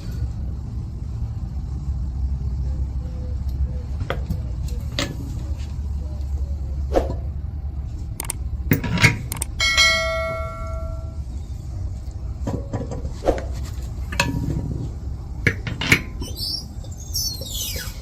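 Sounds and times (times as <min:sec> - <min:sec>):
steady low hum: 0:00.0 - 0:18.0
metal parts clanking: 0:08.2 - 0:11.0, 0:15.5 - 0:16.3
struck metal ringing: 0:08.8 - 0:11.2.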